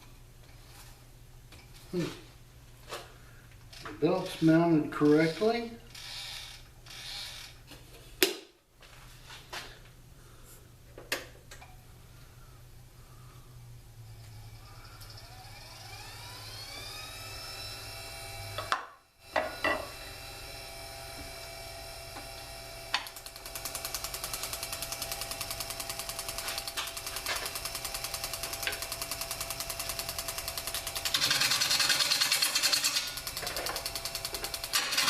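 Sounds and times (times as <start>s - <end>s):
lathe motor whining: 3.8s - 7.5s, 14.1s - 35.0s.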